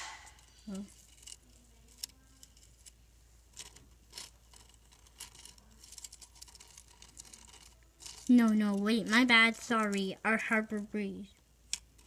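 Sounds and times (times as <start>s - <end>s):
faint irregular clicks: 10.7s - 12.0s.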